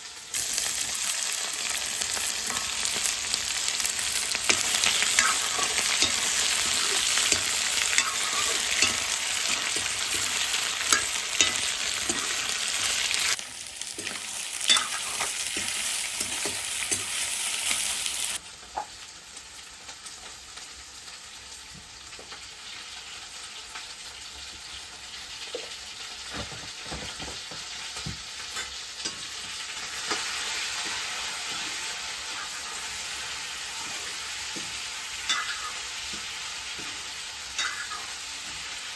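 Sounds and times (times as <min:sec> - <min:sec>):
chicken sizzling in a pan: 0:00.0 - 0:38.9
spatula scraping a pan: 0:01.6 - 0:13.4, 0:14.0 - 0:18.4, 0:28.6 - 0:38.8.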